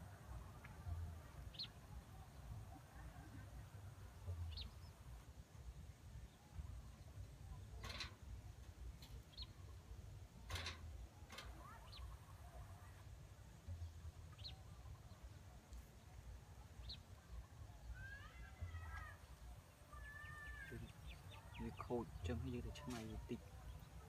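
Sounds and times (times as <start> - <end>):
faint low rumble: 0.0 - 24.0
bird chirping: 4.2 - 5.2, 13.6 - 24.0.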